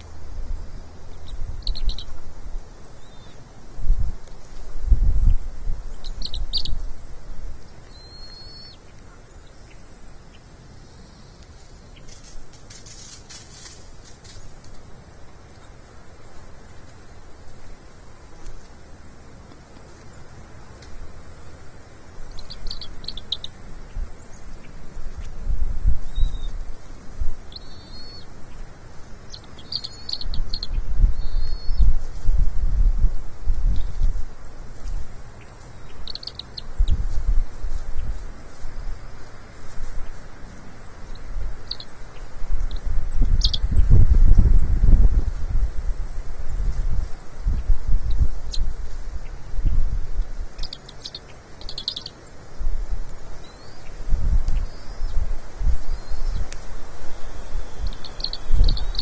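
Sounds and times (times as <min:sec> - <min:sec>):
low rumbling noise: 0:00.0 - 0:50.8
bird chirps: 0:01.1 - 0:02.2, 0:03.0 - 0:03.4, 0:05.2 - 0:06.9, 0:07.6 - 0:12.2, 0:22.3 - 0:24.8, 0:27.5 - 0:28.6, 0:29.3 - 0:31.9, 0:35.4 - 0:37.0, 0:40.8 - 0:44.0, 0:50.6 - 0:52.3, 0:53.4 - 0:55.2, 0:57.2 - 0:59.0
faint high scratchy sound: 0:11.0 - 0:19.2.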